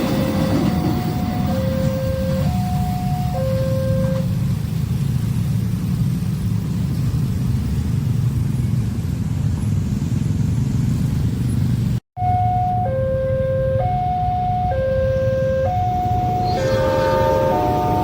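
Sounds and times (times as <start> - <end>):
two-tone crossing alarm: 0.0 - 4.3, 12.2 - 18.0
train rumbling past: 0.0 - 12.9, 13.8 - 18.0.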